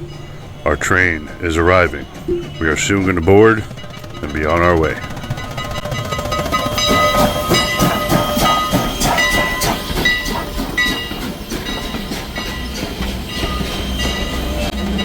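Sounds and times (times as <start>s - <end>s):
high steady tones: 0.0s - 10.2s
train hissing: 0.0s - 15.0s
train wheels clicking over rail joints: 0.0s - 15.0s.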